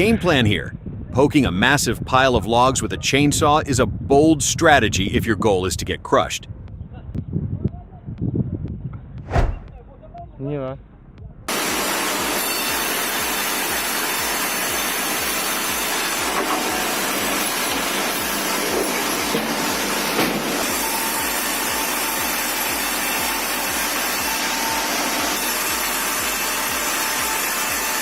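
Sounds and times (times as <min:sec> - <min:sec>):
regular low thumping: 0:09.2 - 0:09.8
sawmill machinery rushing noise: 0:11.5 - 0:28.0.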